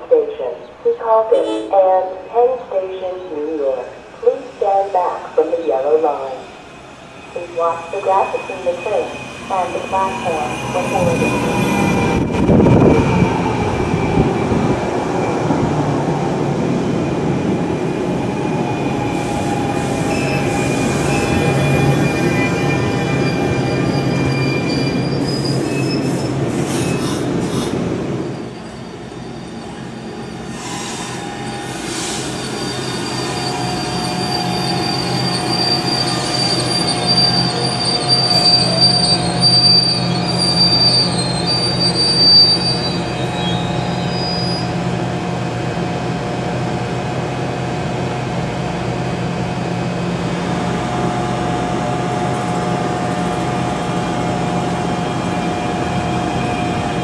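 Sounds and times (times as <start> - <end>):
train rumble: 0.0 - 32.4, 42.9 - 57.0
train electric hum: 0.0 - 57.0
high-pitched wheel squeal: 18.6 - 27.7, 28.3 - 44.7.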